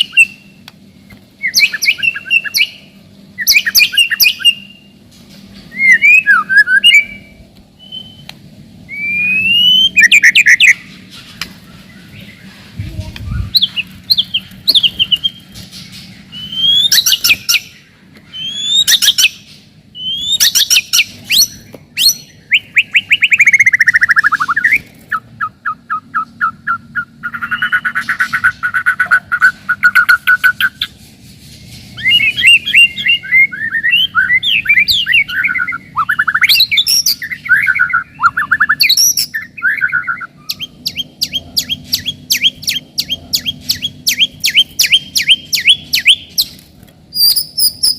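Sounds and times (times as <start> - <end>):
bird singing whistles and trills: 0.0 - 0.6, 1.4 - 5.0, 5.7 - 10.8, 13.1 - 15.6, 16.3 - 30.9, 32.0 - 47.9.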